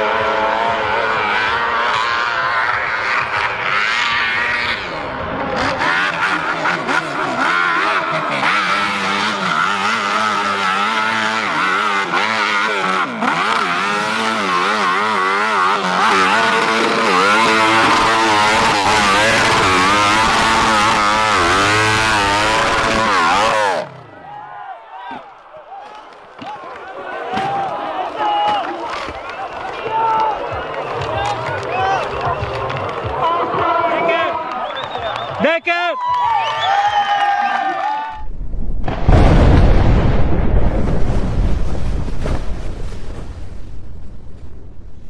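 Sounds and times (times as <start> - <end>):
racing motorcycle engines revving: 0.0 - 35.6.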